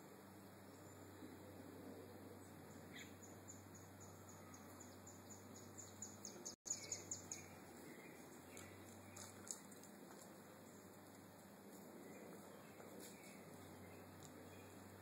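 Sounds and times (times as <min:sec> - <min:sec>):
small bird chirping: 0:02.4 - 0:09.8.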